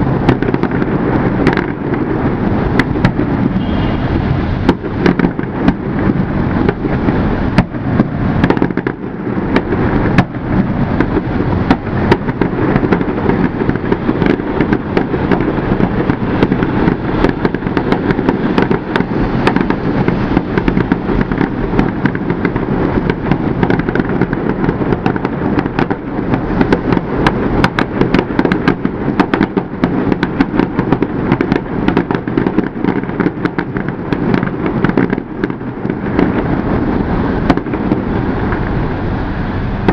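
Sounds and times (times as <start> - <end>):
fireworks bangs and pops: 0.0 - 39.9.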